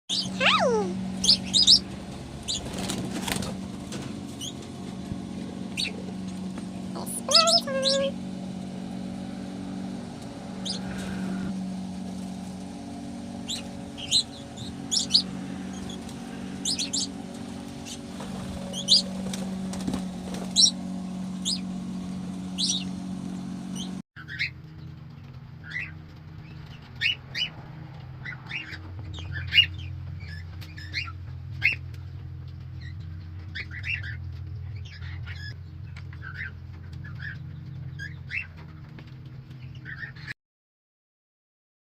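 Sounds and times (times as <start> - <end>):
cockatiels chirping: 0.1 - 1.9, 7.0 - 8.1, 32.8 - 34.2
steady low hum: 0.1 - 27.0.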